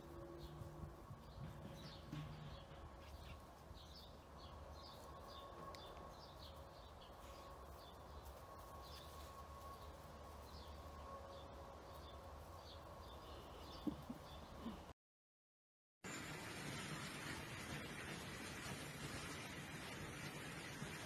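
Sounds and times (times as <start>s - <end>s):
faint birds chirping: 0.0s - 14.9s.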